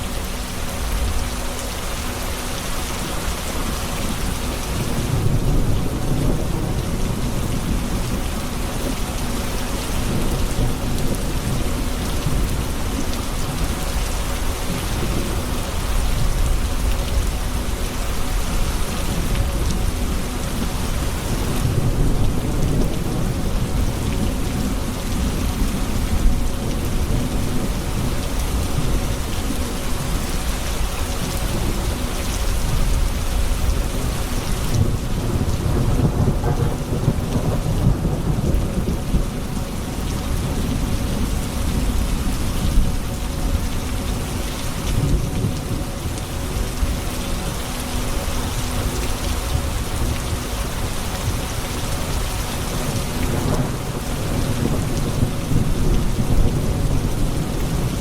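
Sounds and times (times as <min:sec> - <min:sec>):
steady rain falling: 0:00.0 - 0:58.0
rolling thunder: 0:34.7 - 0:41.0.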